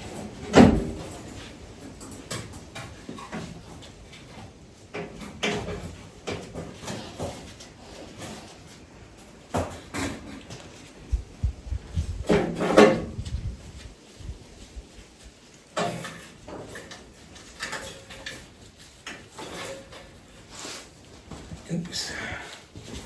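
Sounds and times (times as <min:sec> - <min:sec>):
tools knocking and clattering: 0:00.0 - 0:10.9, 0:12.2 - 0:13.5, 0:15.6 - 0:20.5.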